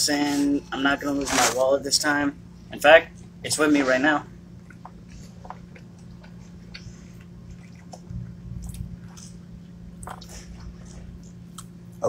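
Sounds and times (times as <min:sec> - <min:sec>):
steady low hum: 0:00.0 - 0:12.0
quiet chewing: 0:04.5 - 0:12.0.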